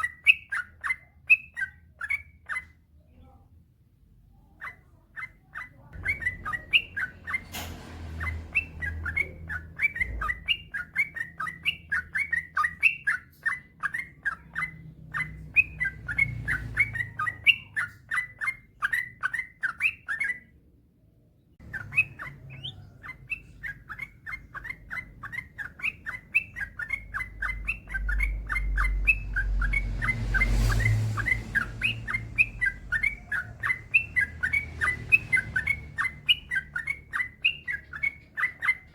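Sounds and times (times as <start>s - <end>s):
bird singing chattering notes: 0.0s - 2.8s, 4.4s - 20.6s, 21.6s - 38.9s
low rumble: 27.0s - 37.0s.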